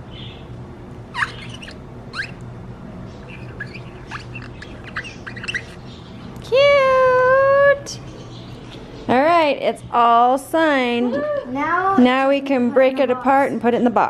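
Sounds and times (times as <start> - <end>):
bird chirping and squawking: 0.0 - 0.5, 1.1 - 9.4.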